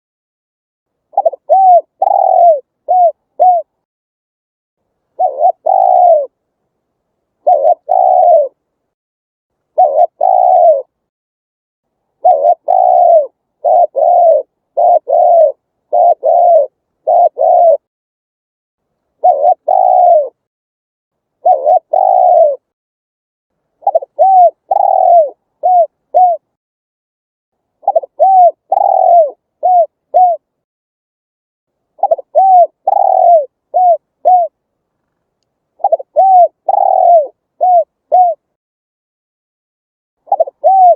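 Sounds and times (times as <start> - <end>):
dove cooing: 1.1 - 3.8, 5.2 - 6.4, 7.4 - 8.6, 9.7 - 11.0, 12.2 - 17.9, 19.2 - 20.5, 21.4 - 22.7, 23.8 - 26.5, 27.8 - 30.5, 32.0 - 34.6, 35.8 - 38.5, 40.2 - 40.9.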